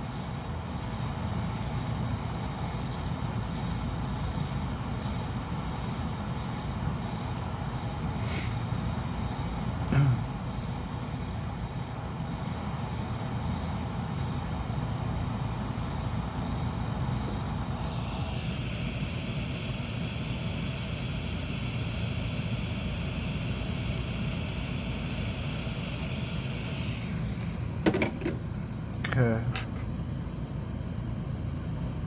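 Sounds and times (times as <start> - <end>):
high steady whine: 0.0 - 32.0
hot-air gun blowing: 7.9 - 8.9, 23.0 - 28.6.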